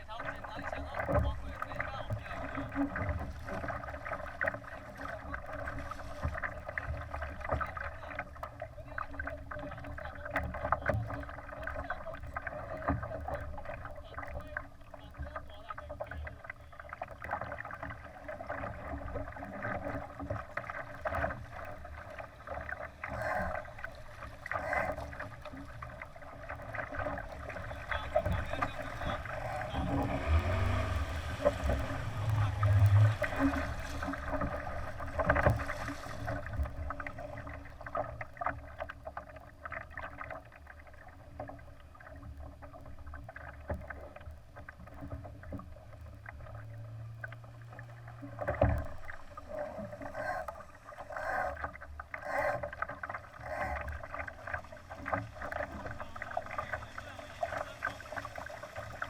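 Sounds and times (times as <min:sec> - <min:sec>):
water splashing along boat hull: 0:00.0 - 0:59.0
low rumbling gusts: 0:27.6 - 0:35.8.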